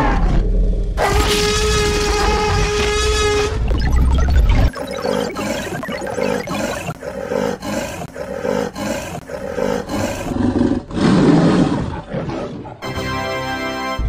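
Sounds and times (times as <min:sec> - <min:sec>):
tiger growling: 0:04.8 - 0:12.8
tiger roar: 0:05.0 - 0:12.8.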